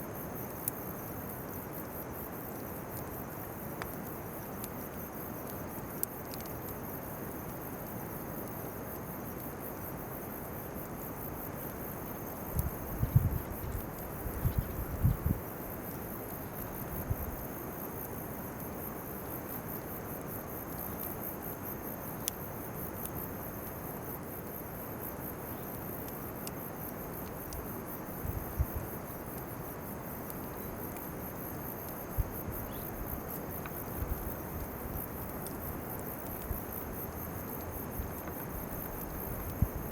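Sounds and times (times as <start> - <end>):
crickets chirring: 0.0 - 39.9
faint sharp clicks: 5.4 - 6.8, 12.5 - 12.7, 26.0 - 26.6.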